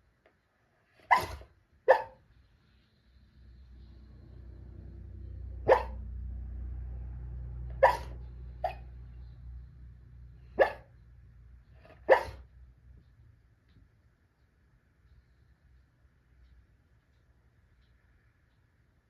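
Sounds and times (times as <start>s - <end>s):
dog barking in its sleep: 1.0s - 2.2s, 5.6s - 6.2s, 7.7s - 8.9s, 10.6s - 10.9s, 11.8s - 12.5s.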